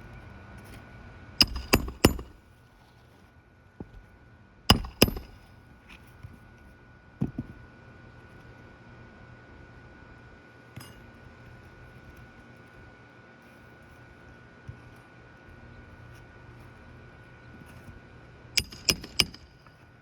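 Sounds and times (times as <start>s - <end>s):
hammer driving nails: 1.4s - 2.4s, 4.7s - 5.4s, 18.6s - 19.6s.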